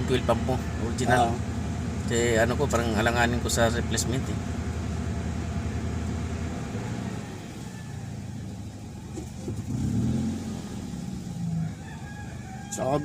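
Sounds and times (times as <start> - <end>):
car engine idling roughly: 0.0 - 9.7.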